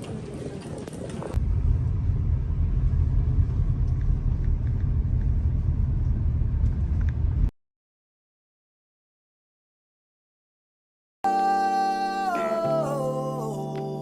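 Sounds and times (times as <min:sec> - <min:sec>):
vehicle interior rumble: 0:01.2 - 0:07.5.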